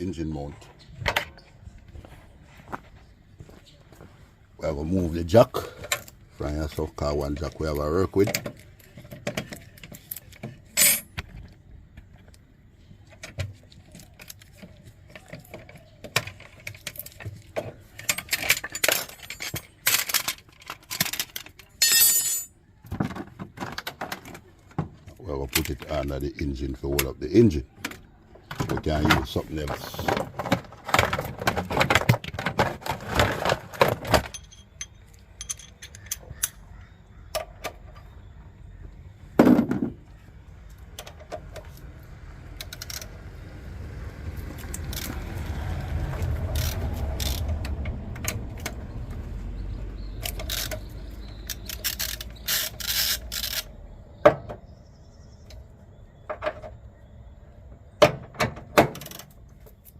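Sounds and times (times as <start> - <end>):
metal jack clanking and rattling: 8.2 - 11.3, 16.3 - 22.5, 28.6 - 36.6, 50.2 - 53.7.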